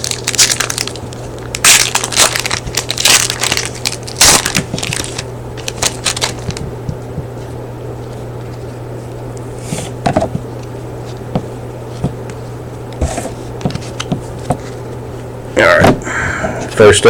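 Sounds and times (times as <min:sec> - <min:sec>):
plastic wrapper crinkling torn open: 0:00.0 - 0:06.6.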